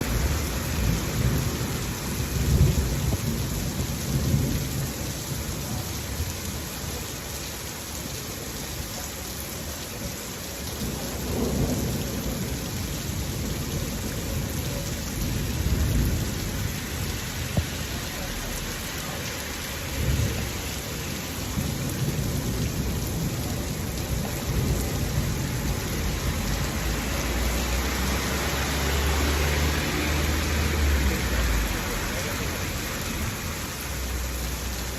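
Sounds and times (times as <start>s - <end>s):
thunder rumbling: 0.0s - 5.5s, 10.9s - 18.0s, 19.9s - 27.4s
heavy rain falling: 0.0s - 34.9s.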